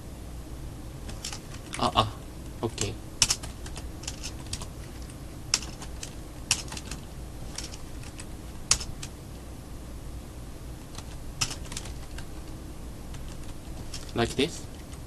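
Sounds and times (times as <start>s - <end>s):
typing on computer keyboard: 1.1s - 1.8s, 2.8s - 7.0s, 7.6s - 9.1s, 10.9s - 12.3s, 13.1s - 15.0s.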